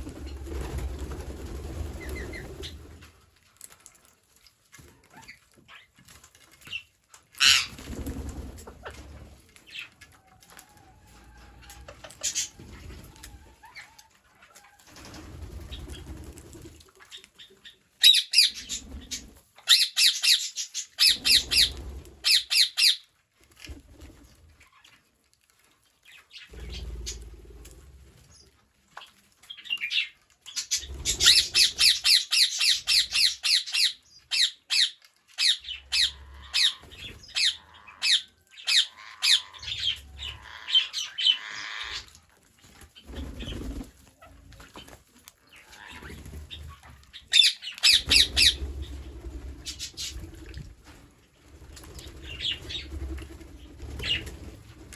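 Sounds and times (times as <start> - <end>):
parrots squawking: 7.4 - 7.8, 18.0 - 18.8, 19.6 - 23.0, 30.6 - 42.2, 46.8 - 48.6.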